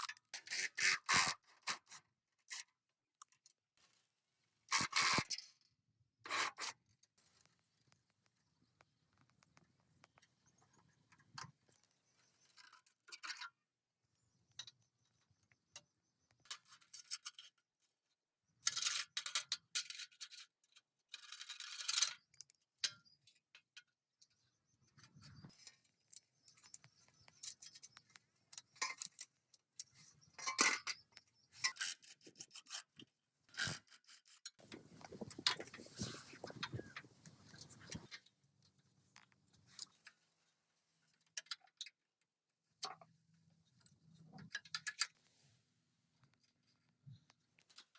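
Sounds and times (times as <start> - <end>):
scraping and brushing on metal: 34.6 - 38.1.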